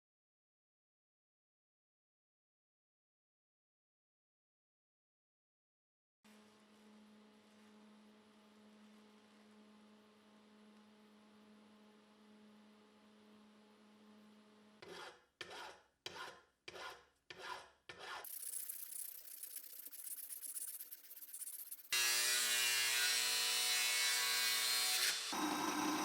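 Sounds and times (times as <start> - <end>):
file rasping on metal: 14.8 - 26.0.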